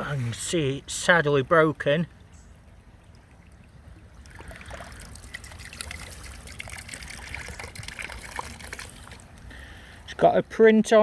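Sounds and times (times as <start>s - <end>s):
stream water trickling and splashing: 0.0s - 11.0s
small water clicks: 3.0s - 9.6s.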